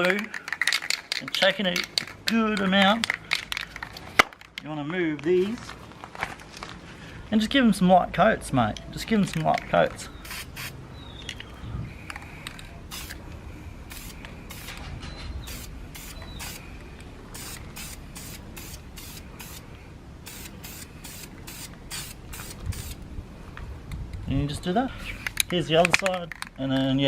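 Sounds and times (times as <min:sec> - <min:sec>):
spray can hissing bursts: 0:10.2 - 0:10.8, 0:12.9 - 0:13.2, 0:13.9 - 0:14.8, 0:15.4 - 0:16.6, 0:17.3 - 0:19.6, 0:20.2 - 0:23.0.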